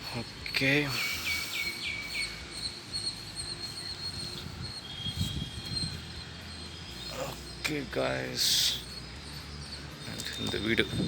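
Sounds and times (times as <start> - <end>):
high-pitched insect drone: 0.0 - 11.0
small birds chirping: 0.0 - 11.0.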